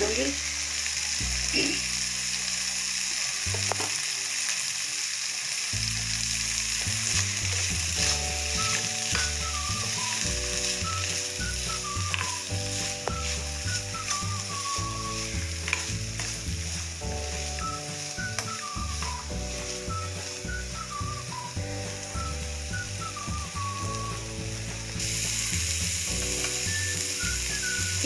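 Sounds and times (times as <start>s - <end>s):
soft background music: 0.0s - 28.0s
vegetables sizzling in oil: 0.0s - 28.0s
spatula stirring in pan: 6.9s - 20.6s.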